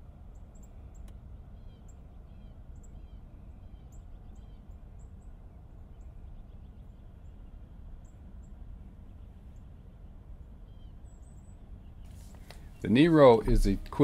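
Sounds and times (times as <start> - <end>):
birds chirping: 0.2 - 14.0
light click: 1.0 - 1.2.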